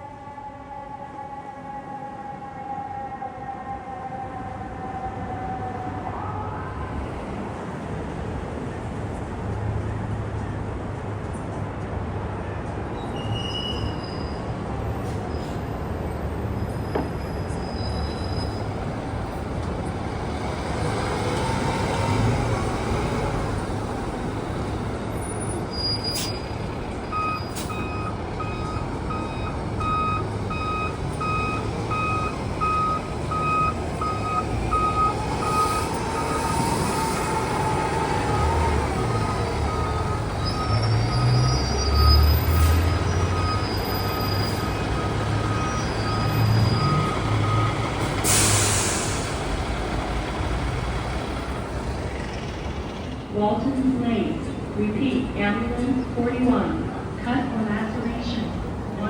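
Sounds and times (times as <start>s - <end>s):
faint siren wailing: 0.0s - 7.8s, 27.1s - 48.0s
heavy vehicle engine rumbling: 5.6s - 59.0s
reversing alarm beeping: 27.1s - 36.8s, 38.3s - 49.0s.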